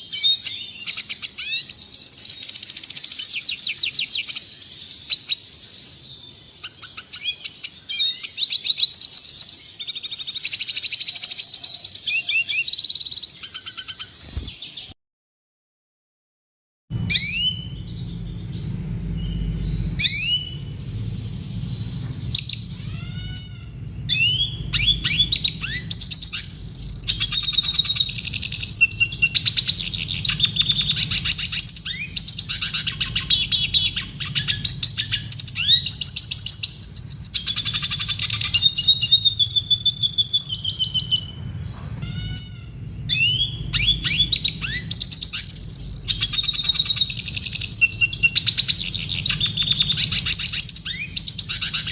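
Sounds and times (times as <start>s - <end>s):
bird singing trills and whistles: 0.0s - 15.0s, 17.0s - 51.9s
low steady hum: 16.9s - 51.9s.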